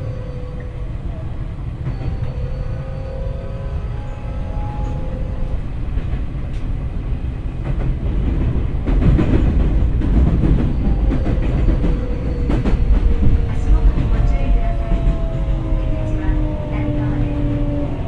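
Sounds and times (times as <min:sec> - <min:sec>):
wheel-on-rail rumble: 0:03.9 - 0:18.0.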